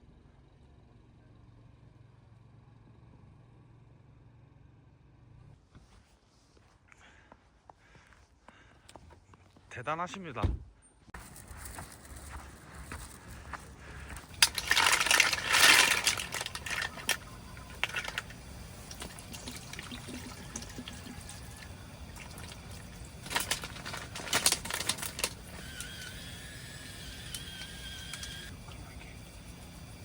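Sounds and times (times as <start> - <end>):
liquid being poured: 14.3 - 25.1.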